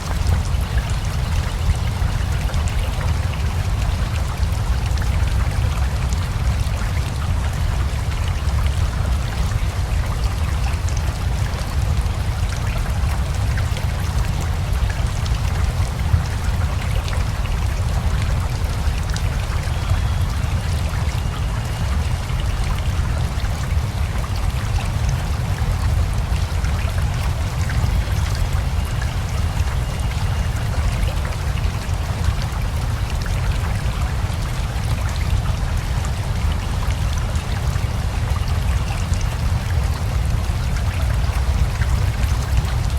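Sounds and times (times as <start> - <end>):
river flowing: 0.0 - 42.9
steady rain: 0.0 - 42.9.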